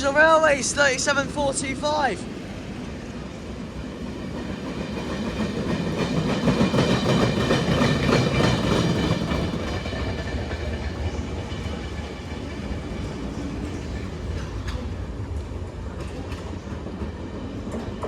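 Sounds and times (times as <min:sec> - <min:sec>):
train wheels clattering: 0:04.0 - 0:18.0.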